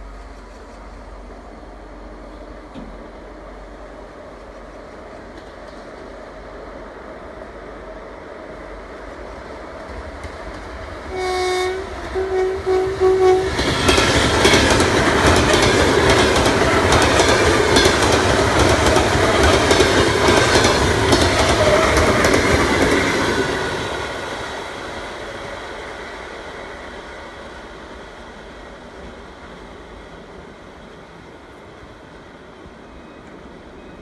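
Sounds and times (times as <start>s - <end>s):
train horn blasts: 11.1s - 13.7s
train wheels clicking over rail joints: 13.2s - 25.4s.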